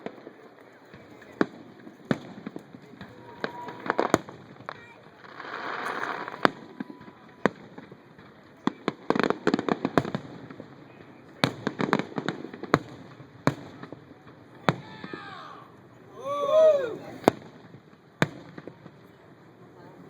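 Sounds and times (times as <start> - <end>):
rapid crackling firework pops: 0.0 - 15.2, 17.2 - 20.0
firework shells bursting: 1.3 - 6.8.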